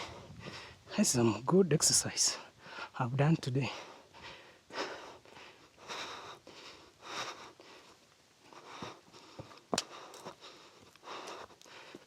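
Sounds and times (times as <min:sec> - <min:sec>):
man breathing hard: 0:00.0 - 0:00.9, 0:02.5 - 0:03.0, 0:03.7 - 0:12.0.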